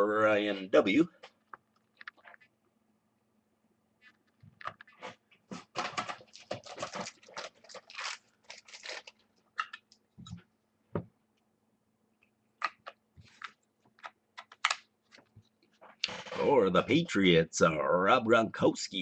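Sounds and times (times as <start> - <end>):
trading card packaging crinkling: 5.7 - 10.0.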